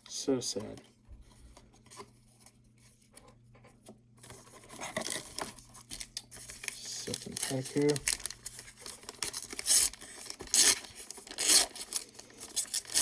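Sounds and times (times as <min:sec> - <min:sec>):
plastic wrapper crinkling and tearing: 0:04.4 - 0:13.0.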